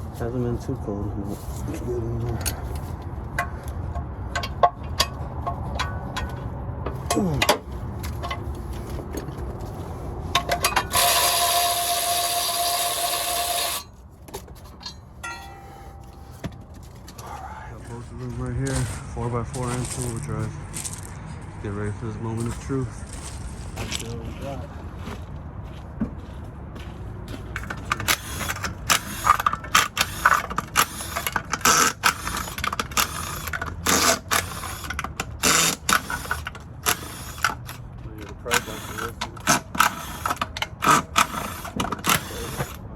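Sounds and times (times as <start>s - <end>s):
tools clicking and knocking: 2.3s - 9.5s, 10.3s - 17.2s, 27.5s - 42.9s
handheld power tool running: 10.4s - 13.9s, 27.9s - 37.8s, 38.5s - 42.8s.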